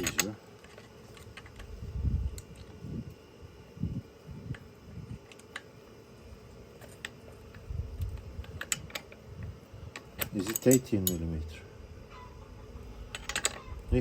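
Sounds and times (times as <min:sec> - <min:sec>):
wrenches clicking on metal: 0:10.0 - 0:11.3.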